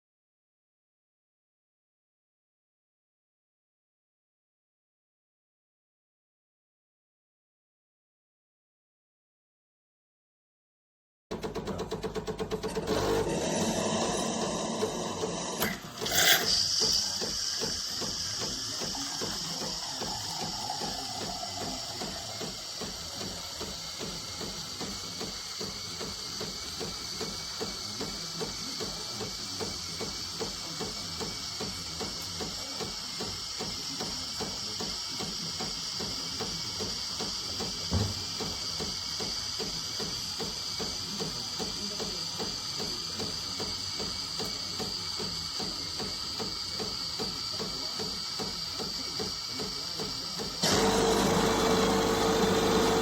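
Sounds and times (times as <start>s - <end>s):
pump pulsing: 11.4s - 53.0s
coffee machine hissing: 12.5s - 53.0s
short thump: 37.9s - 38.3s.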